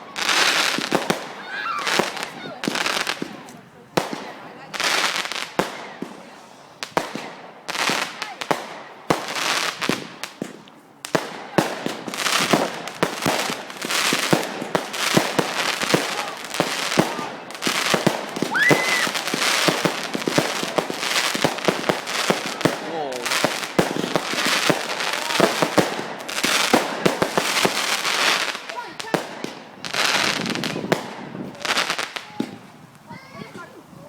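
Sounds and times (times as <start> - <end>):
fireworks bangs and crackles: 0.0 - 34.0
firework whistle: 18.4 - 19.8.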